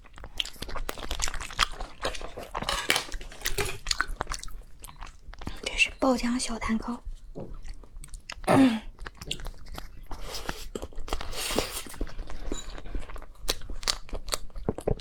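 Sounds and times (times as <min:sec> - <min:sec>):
wet chewing and mouth clicks: 0:00.0 - 0:06.4, 0:07.0 - 0:15.0.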